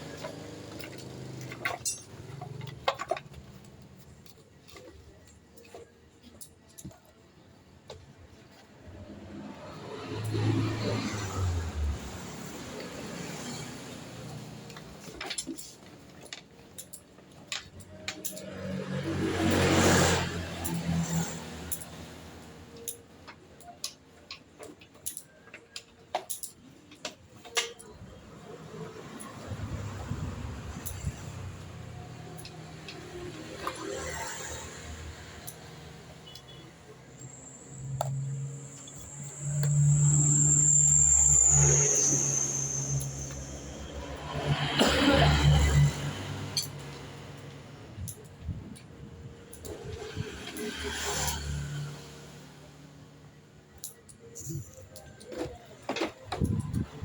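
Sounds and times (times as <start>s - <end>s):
metallic knocks and clinks: 0.0s - 7.2s, 12.3s - 44.4s.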